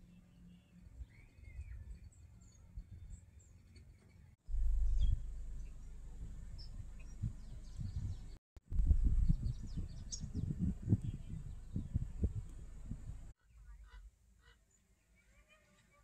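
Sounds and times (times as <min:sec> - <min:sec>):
faint bird chirps: 0:00.0 - 0:08.4
low irregular rumble: 0:04.5 - 0:13.4.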